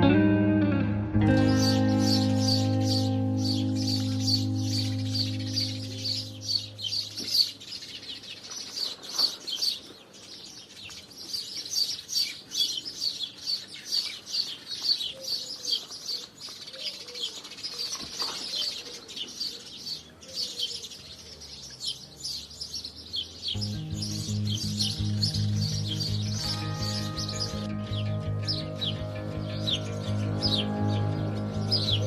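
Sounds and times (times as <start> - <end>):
soft background music: 0.0 - 7.2, 23.6 - 32.0
sparrows chirping: 1.3 - 32.0.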